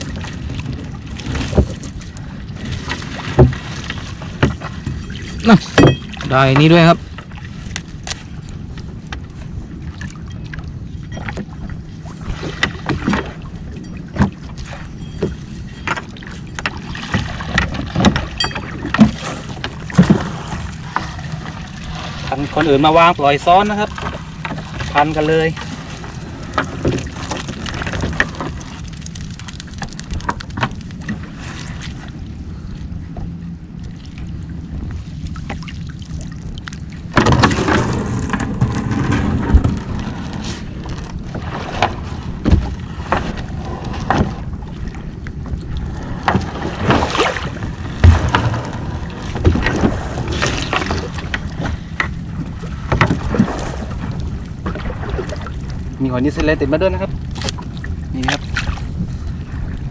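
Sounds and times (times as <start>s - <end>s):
boat engine running: 0.0s - 59.9s
net hauling knocks and clatter: 37.1s - 44.4s.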